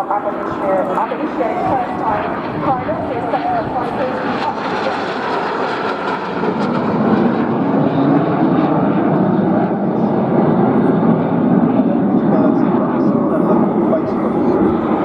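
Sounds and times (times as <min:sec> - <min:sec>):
jet aircraft engine roar: 0:00.0 - 0:15.0.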